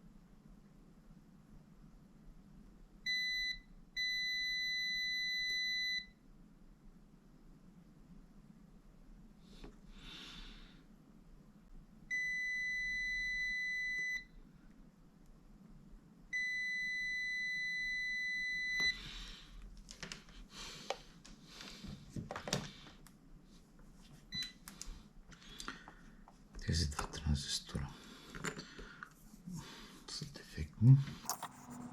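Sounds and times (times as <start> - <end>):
multimeter continuity beeps: 24.3 - 24.6.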